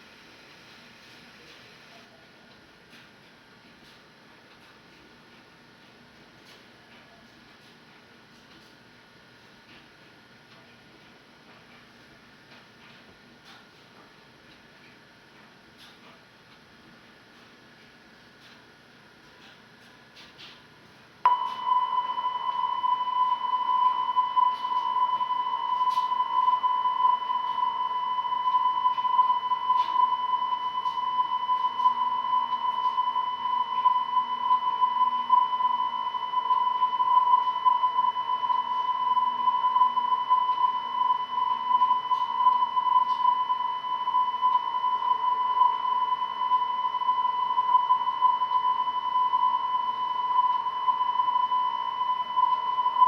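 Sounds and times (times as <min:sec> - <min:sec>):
high electronic test tone: 0:21.3 - 0:53.0.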